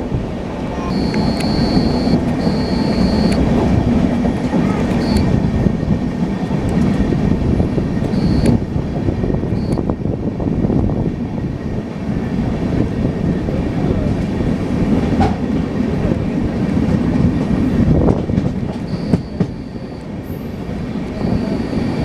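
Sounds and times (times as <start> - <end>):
steady rumbling running noise: 0.0 - 22.0
sharp clicks: 0.9 - 3.4, 8.1 - 8.6, 9.6 - 9.8.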